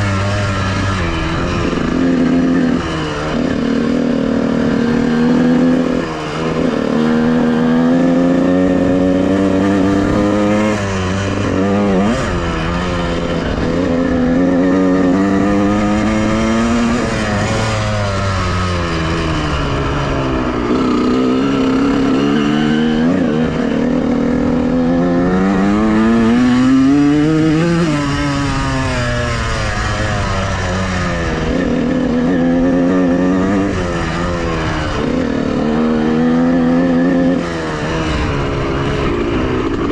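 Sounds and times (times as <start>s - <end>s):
two-stroke dirt bike engine revving: 0.0s - 39.9s.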